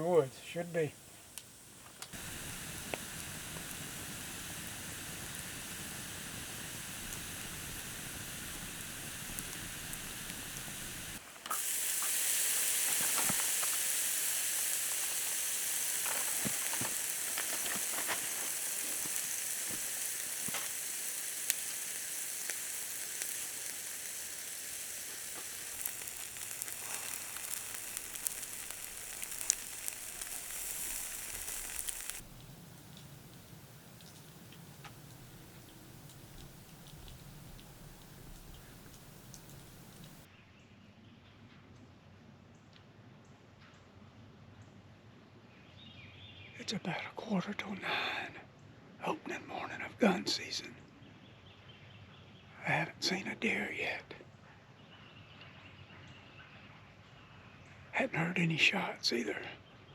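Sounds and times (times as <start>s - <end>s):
steady hiss: 0.0s - 40.3s
faint crackles and clicks: 0.8s - 40.3s.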